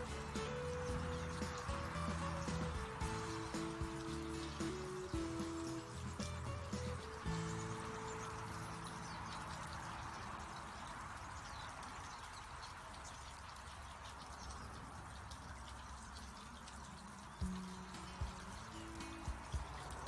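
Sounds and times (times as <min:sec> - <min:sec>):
low sustained musical tones: 0:00.0 - 0:10.5, 0:17.4 - 0:20.0
high bird chirps: 0:00.0 - 0:12.6
trickling water-like hiss: 0:00.0 - 0:20.0.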